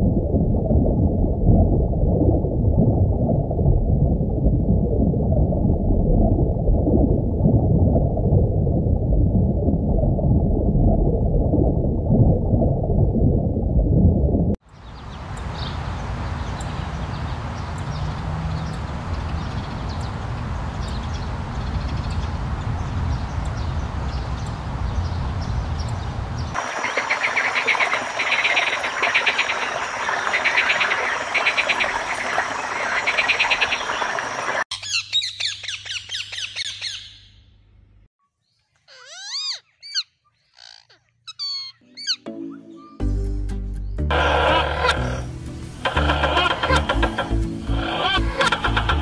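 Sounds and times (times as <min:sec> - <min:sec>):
low outdoor rumble: 0:00.0 - 0:14.6
parakeet chirps and whistles: 0:38.9 - 0:43.0
frog calling in pulsed trains: 0:44.1 - 0:49.0.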